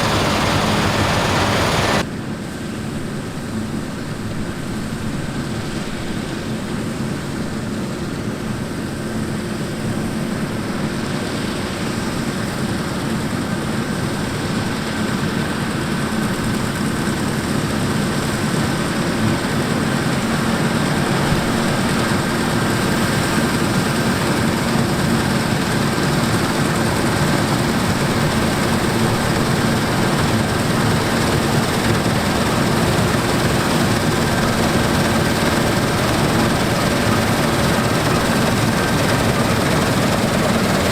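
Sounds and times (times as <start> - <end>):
diesel machinery running: 0.0 - 2.0, 17.4 - 40.9.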